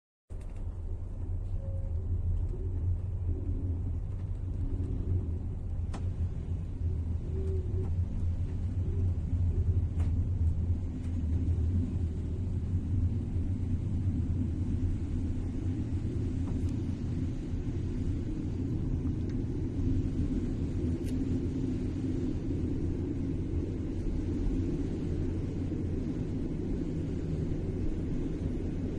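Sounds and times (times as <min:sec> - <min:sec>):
train rumbling inside carriage: 0:00.3 - 0:28.9.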